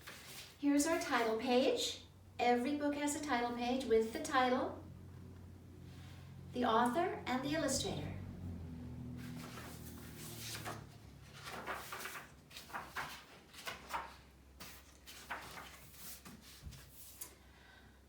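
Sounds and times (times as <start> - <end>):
paper pages rustling: 0.0 - 0.6, 9.2 - 17.3.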